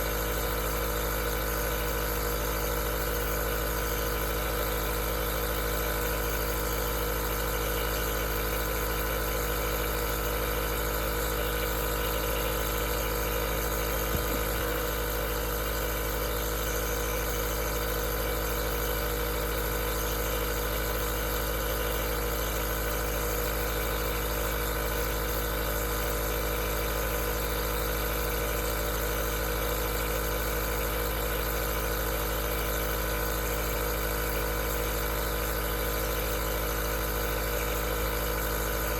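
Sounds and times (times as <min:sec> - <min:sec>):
nebulizer motor hum: 0:00.0 - 0:38.9.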